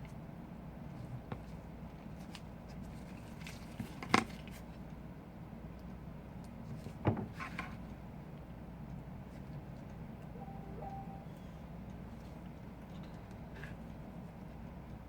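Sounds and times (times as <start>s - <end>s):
steady low hum: 9.0s - 12.8s.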